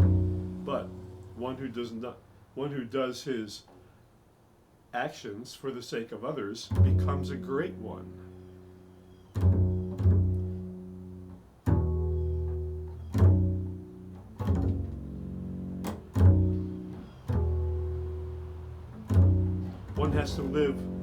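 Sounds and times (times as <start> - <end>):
plucked low string instrument: 0.0 - 1.8, 6.7 - 21.0.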